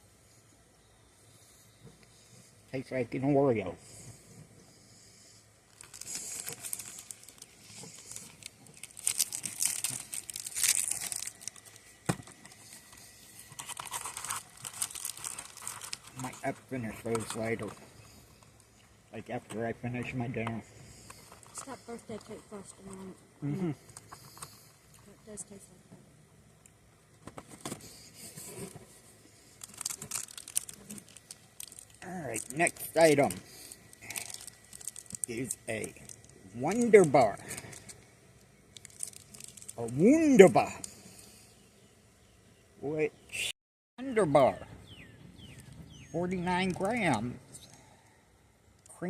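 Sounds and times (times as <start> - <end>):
snack packaging crinkling: 5.7 - 17.7, 29.6 - 38.0, 38.8 - 40.1.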